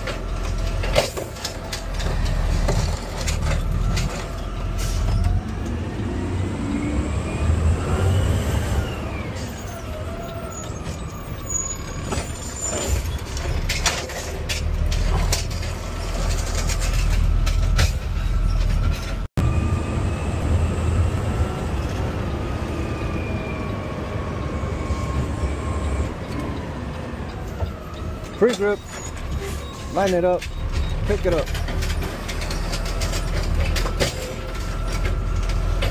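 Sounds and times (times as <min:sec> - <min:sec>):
knocks and rattles: 0:00.0 - 0:04.4
garbage truck diesel engine: 0:00.0 - 0:35.9
air brake noise: 0:04.8 - 0:05.1.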